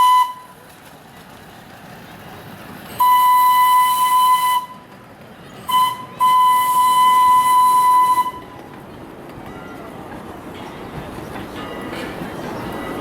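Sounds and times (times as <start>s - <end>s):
steam locomotive whistle blasts: 0.0s - 0.5s, 3.0s - 4.8s, 5.7s - 8.5s.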